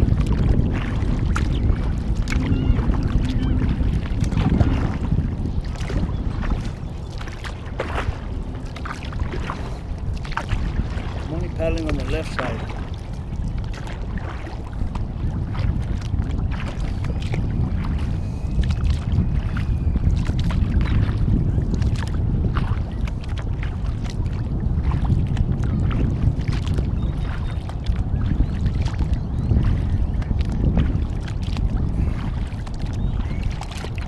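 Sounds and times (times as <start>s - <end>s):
kayak paddle strokes in water: 0.0s - 34.0s
water splashes and drips: 0.0s - 34.0s
wind rumble on microphone: 0.0s - 34.0s.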